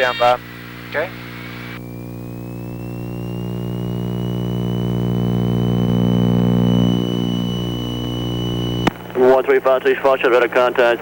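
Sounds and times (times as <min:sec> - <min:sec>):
aircraft cabin engine drone: 0:00.0 - 0:09.3
high steady tone: 0:01.3 - 0:08.9.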